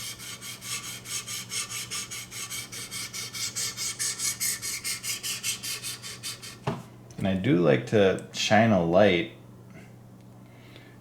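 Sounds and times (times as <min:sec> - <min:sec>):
sharpening stone scraping knife: 0:00.0 - 0:06.6.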